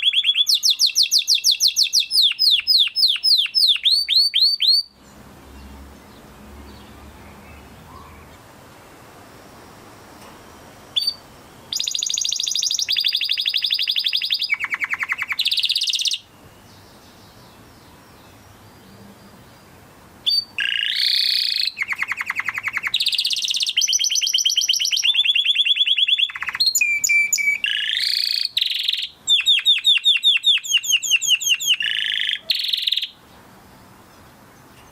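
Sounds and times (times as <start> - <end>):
canary singing: 0.0 - 8.5, 10.9 - 34.9
faint hiss: 4.9 - 20.6.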